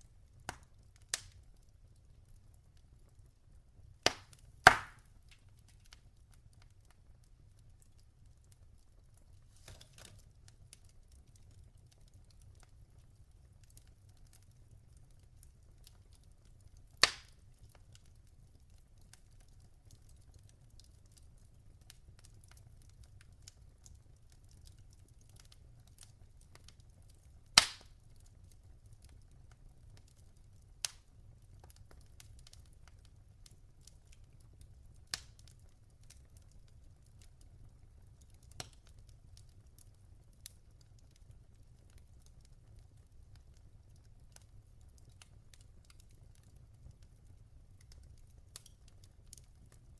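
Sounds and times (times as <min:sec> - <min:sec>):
fire crackling: 0:00.0 - 0:49.9
sharp pops of burning logs: 0:00.5 - 0:01.4, 0:04.0 - 0:06.0, 0:09.6 - 0:10.4, 0:16.9 - 0:17.4, 0:27.5 - 0:28.1, 0:30.8 - 0:31.1, 0:38.2 - 0:39.0, 0:47.8 - 0:48.9.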